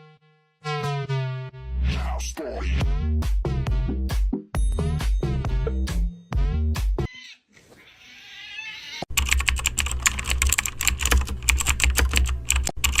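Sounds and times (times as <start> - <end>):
electronic music: 0.0 - 7.1
rapid keyboard typing: 9.1 - 13.0.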